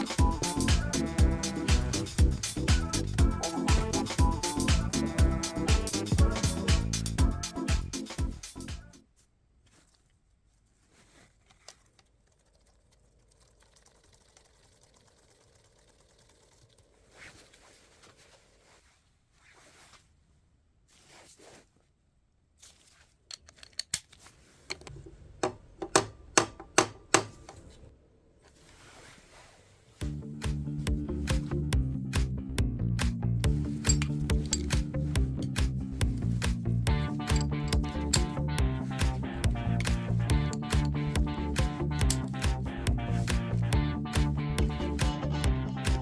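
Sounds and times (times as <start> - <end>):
faint handling noises: 9.0 - 12.9, 16.9 - 25.9, 27.3 - 30.8
hand tools clicking and tapping: 23.3 - 27.7, 33.8 - 38.4, 42.0 - 42.3.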